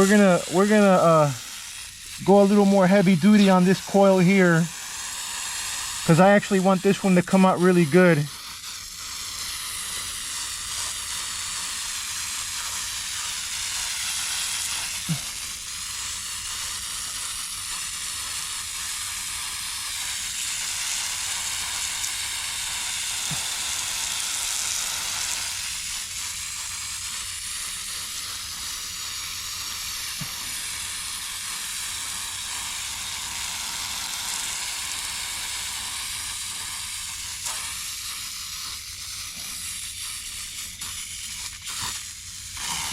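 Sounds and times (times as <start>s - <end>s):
foam fizzing and crackling: 0.0s - 42.9s.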